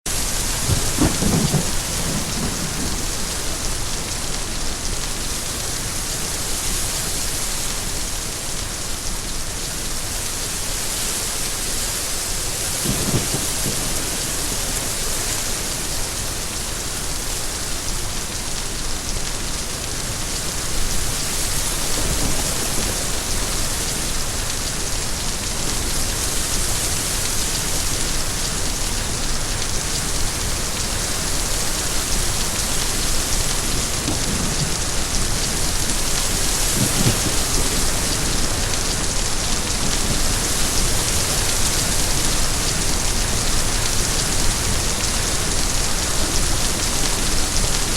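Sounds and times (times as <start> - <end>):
heavy rainfall: 0.1 - 47.9
low rumbles of thunder: 0.2 - 4.0, 12.7 - 15.9, 21.5 - 24.8, 31.8 - 47.7.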